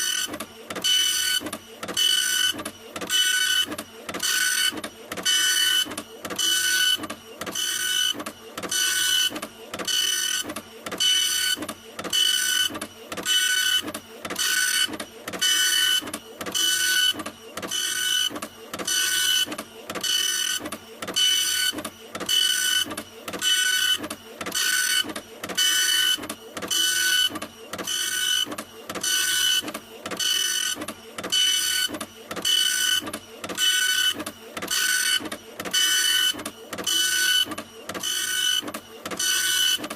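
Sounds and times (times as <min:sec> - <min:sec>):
printer whirring: 0:00.0 - 0:39.9.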